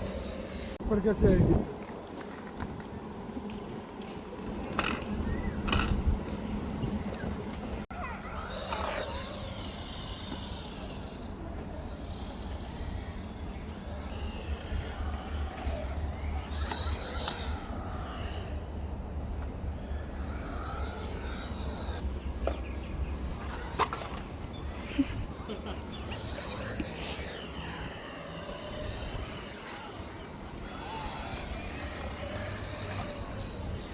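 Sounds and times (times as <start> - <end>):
small electric motor whining: 0.0 - 2.8, 3.4 - 22.3, 23.1 - 33.9
wind rumble on microphone: 0.0 - 7.8, 26.1 - 33.9.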